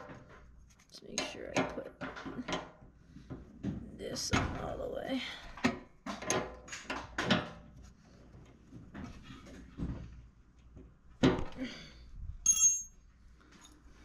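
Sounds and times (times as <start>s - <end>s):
metallic ring: 12.4s - 13.0s.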